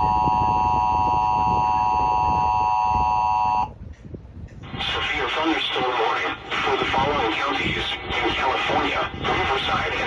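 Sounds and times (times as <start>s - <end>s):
rough low noise: 4.6s - 10.0s.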